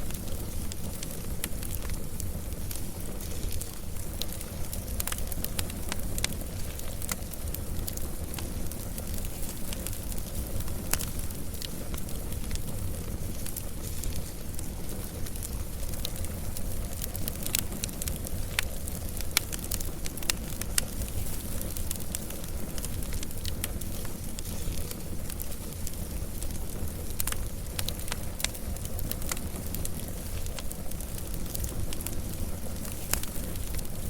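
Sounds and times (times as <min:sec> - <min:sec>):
wood fire crackling and popping: 0:00.0 - 0:34.0.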